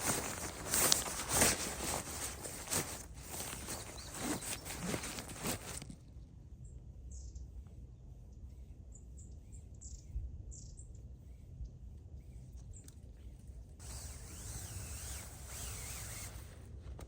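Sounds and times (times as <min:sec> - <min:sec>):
small birds chirping: 0:00.0 - 0:06.0.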